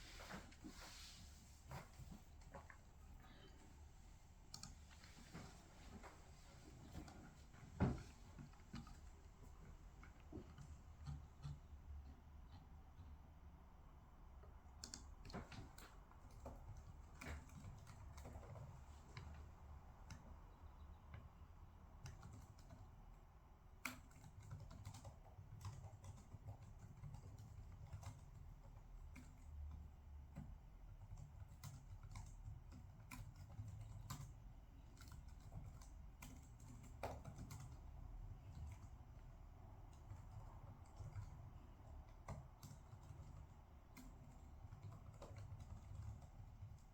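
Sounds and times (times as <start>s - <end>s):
low room rumble: 0.0s - 46.9s
typing on computer keyboard: 8.0s - 12.7s, 14.6s - 20.3s, 22.0s - 46.9s.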